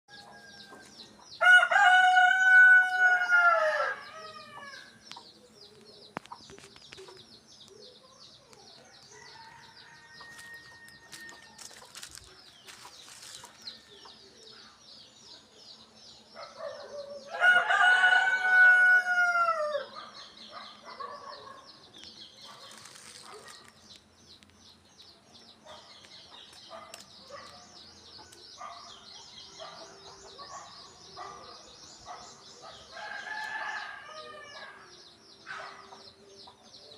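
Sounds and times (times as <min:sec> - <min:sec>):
rooster crowing: 0:01.4 - 0:04.9, 0:09.1 - 0:11.8, 0:17.3 - 0:19.9, 0:33.0 - 0:34.9.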